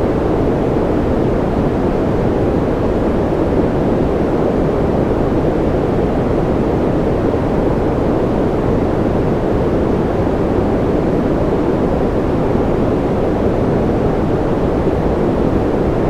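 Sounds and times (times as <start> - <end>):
deep rumbling white noise: 0.0 - 16.0.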